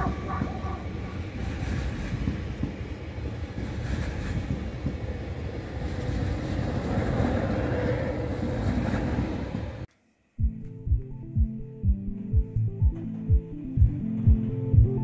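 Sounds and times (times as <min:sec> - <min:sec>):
high-speed train passing: 0:00.0 - 0:09.9.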